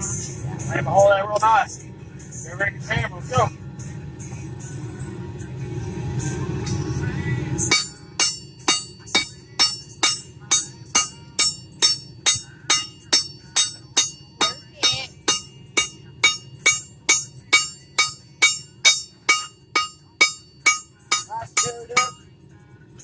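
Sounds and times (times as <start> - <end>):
low rumbling noise: 0.0 - 23.0
hammer striking metal on anvil: 7.6 - 22.2.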